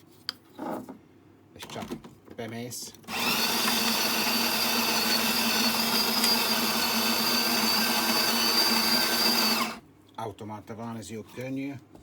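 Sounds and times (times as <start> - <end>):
coffee grinder motor hum and whine: 3.1 - 9.8.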